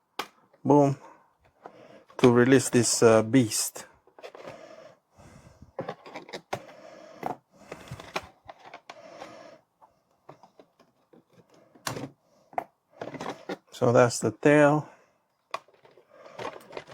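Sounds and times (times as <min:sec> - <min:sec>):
packaging rustling and scraping: 0:04.0 - 0:04.7, 0:05.7 - 0:12.2, 0:13.0 - 0:13.8, 0:15.6 - 0:16.9.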